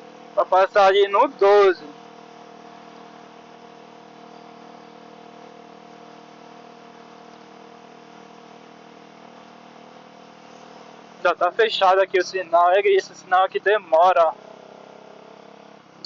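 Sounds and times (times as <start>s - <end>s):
muffled motorcycle engine idling: 0.0s - 16.0s.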